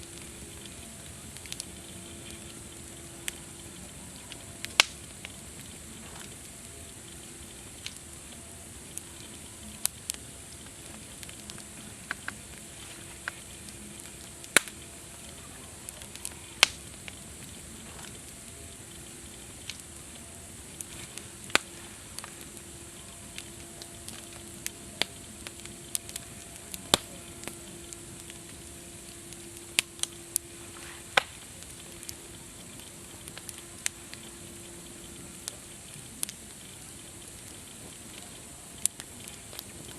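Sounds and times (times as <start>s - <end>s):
campfire crackling and popping: 0.0s - 39.9s
campfire low hiss: 0.0s - 39.9s.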